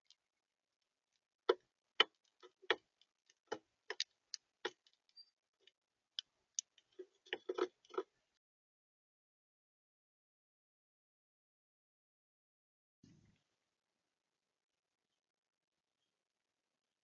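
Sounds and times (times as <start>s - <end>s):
birds pecking at feeder: 1.1s - 8.2s.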